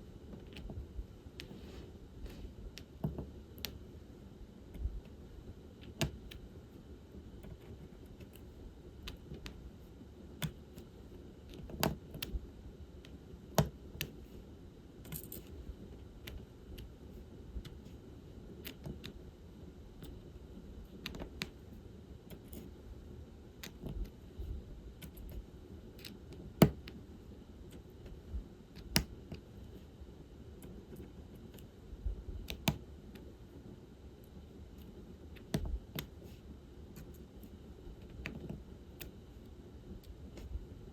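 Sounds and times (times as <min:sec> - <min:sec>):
small plastic clicks and taps: 0:11.5 - 0:12.4, 0:13.0 - 0:14.2, 0:21.0 - 0:21.6, 0:23.6 - 0:24.1, 0:28.8 - 0:29.4, 0:32.4 - 0:33.3, 0:34.8 - 0:36.1, 0:38.0 - 0:39.2.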